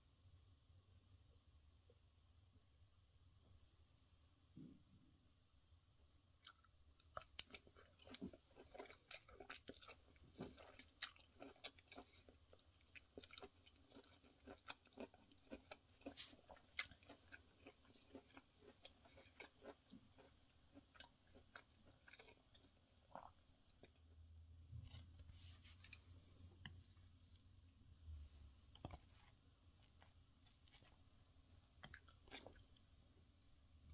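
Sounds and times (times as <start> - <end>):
person chewing food: 6.4 - 33.0.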